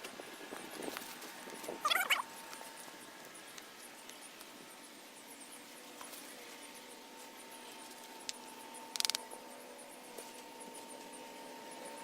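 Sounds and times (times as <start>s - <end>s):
insects chirping: 0.2s - 12.0s
sharp click: 8.3s - 9.2s.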